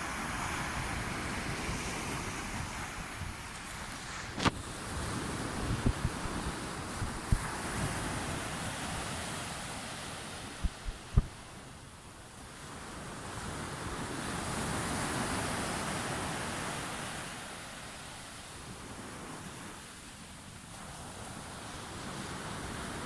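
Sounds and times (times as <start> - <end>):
sea waves washing ashore: 0.0 - 23.0
wind thumps on microphone: 0.6 - 9.2, 10.4 - 11.6.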